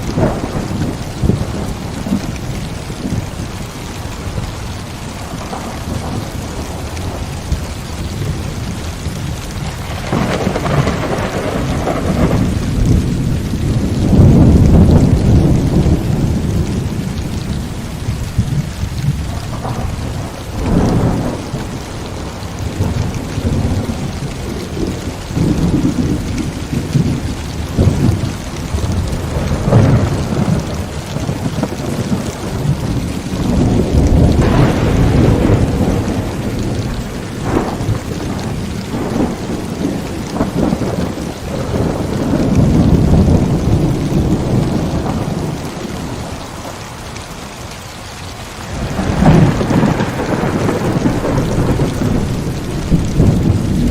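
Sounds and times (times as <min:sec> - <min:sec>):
sharp thunderclaps: 0:00.0 - 0:47.0, 0:48.6 - 0:53.9
heavy rain falling: 0:00.0 - 0:53.9
rolling thunder: 0:00.0 - 0:53.9.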